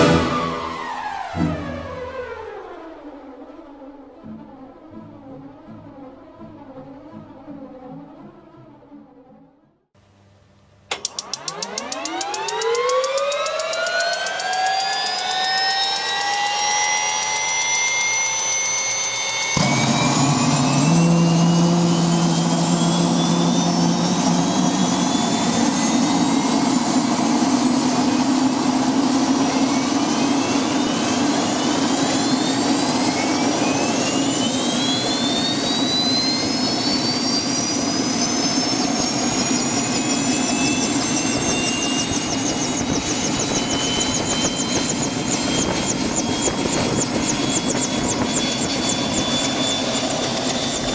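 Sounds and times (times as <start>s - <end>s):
drone motors whining: 10.9s - 50.9s
low hum: 13.6s - 50.9s.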